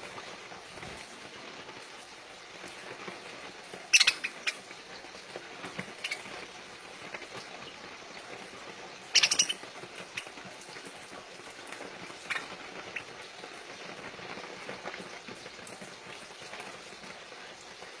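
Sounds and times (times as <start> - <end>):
crackly patter: 0.0 - 18.0
parakeet squawk: 3.8 - 4.8, 5.8 - 6.5, 9.0 - 10.4, 12.2 - 13.1
parakeet chirps: 3.8 - 5.0, 5.7 - 7.8, 9.0 - 10.4, 12.1 - 13.2.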